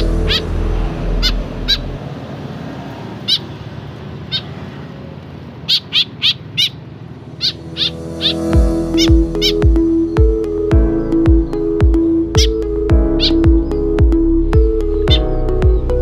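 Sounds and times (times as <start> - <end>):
baby bird cheeping: 5.7 - 6.8.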